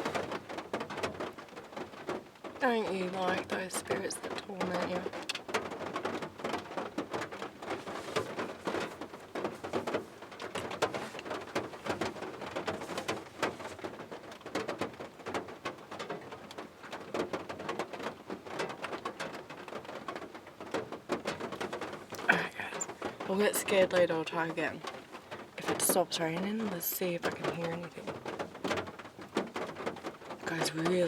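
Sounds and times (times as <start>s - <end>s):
raindrops ticking close by: 0.0s - 31.0s
steady rain: 0.0s - 31.0s.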